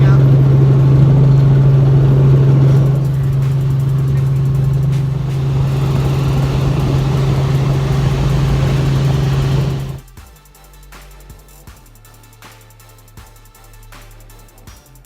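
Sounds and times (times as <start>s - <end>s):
helicopter drone: 0.0s - 10.0s.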